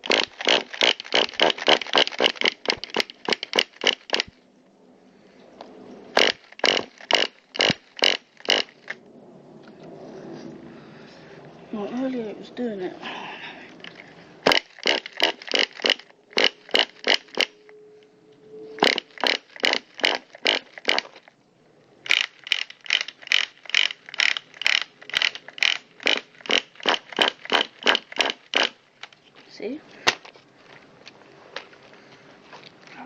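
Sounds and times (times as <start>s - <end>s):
pull-starter rope rasping: 0.0s - 4.4s, 6.2s - 9.0s, 13.8s - 17.6s, 18.8s - 21.3s, 22.1s - 28.8s.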